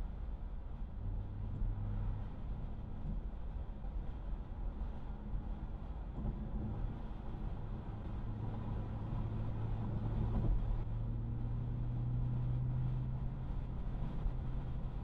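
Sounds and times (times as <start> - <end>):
road noise: 0.0 - 15.0
car engine hum: 5.4 - 15.0.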